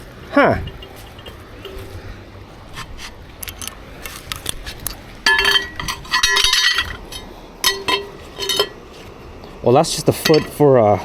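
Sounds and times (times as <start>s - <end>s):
scrap metal clinking on magnet: 0.6s - 2.1s, 2.7s - 8.8s, 10.2s - 10.6s.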